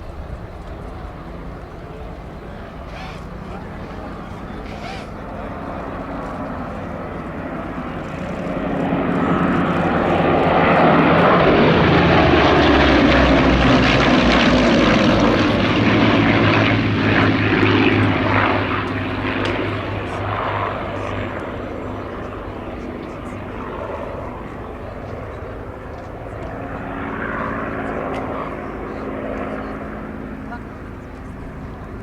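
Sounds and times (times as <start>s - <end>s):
propeller plane engine flying past: 0.0s - 32.0s.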